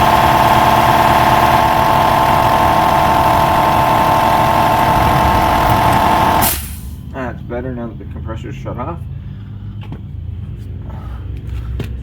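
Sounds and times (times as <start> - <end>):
air compressor running: 0.0 - 7.1.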